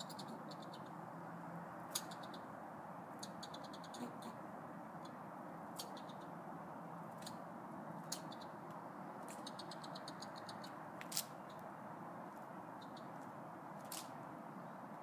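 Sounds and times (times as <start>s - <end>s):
squirrel chattering: 0.0s - 1.0s, 1.9s - 6.4s, 8.0s - 8.6s, 9.2s - 11.7s, 12.7s - 13.2s.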